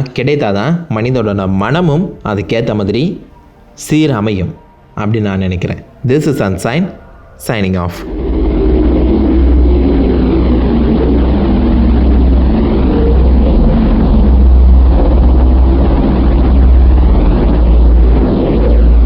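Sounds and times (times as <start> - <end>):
deep hum: 5.8 - 19.0
engine-like rumble: 7.9 - 19.0
whooshing sweep: 8.0 - 19.0.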